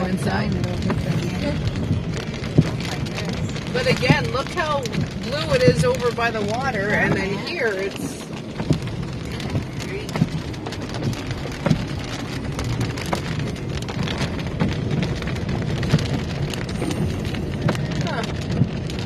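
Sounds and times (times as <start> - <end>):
raindrops tapping on car: 0.0 - 19.0
road noise rumble: 0.0 - 19.0.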